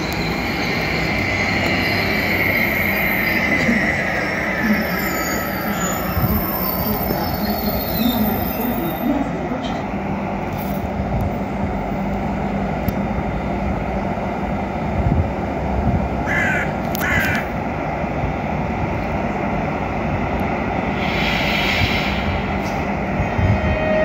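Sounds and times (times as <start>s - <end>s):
electric train humming: 0.0s - 24.0s
bird cawing: 16.3s - 17.4s.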